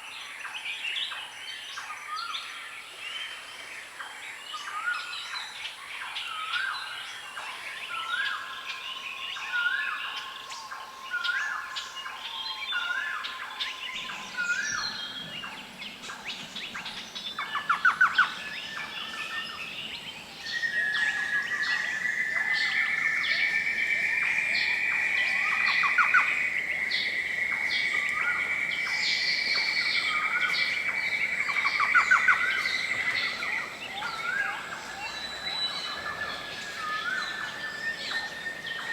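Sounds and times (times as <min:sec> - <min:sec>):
birds chirping: 0:12.8 - 0:38.9.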